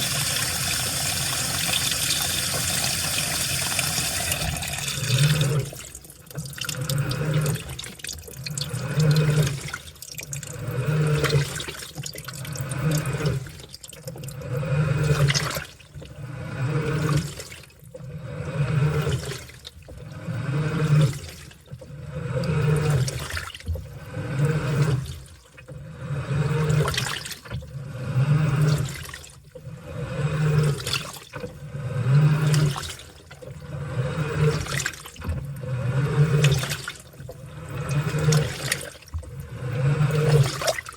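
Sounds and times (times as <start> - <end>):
washing machine low hum: 0.0 - 40.9
water sloshing in washing machine: 0.0 - 40.9.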